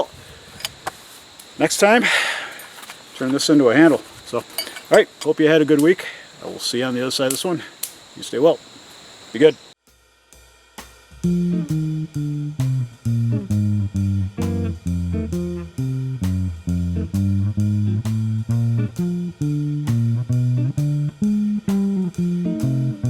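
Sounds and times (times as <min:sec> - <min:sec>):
guitar walking bass line: 0:11.2 - 0:23.0.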